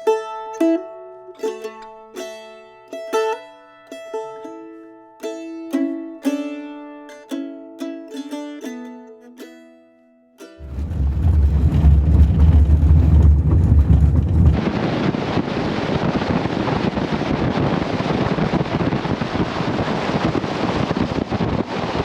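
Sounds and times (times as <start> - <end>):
wind buffeting microphone: 10.6 - 22.0.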